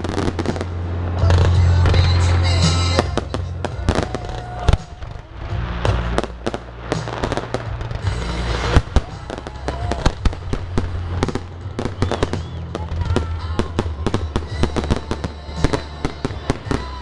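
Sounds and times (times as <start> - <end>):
crackling firework stars: 0.0 - 17.0.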